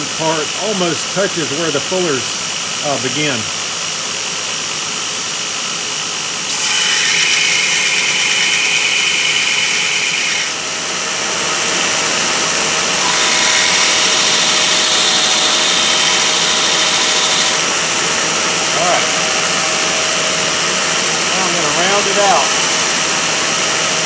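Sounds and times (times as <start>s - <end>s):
electric grinder grinding metal: 6.5s - 24.0s.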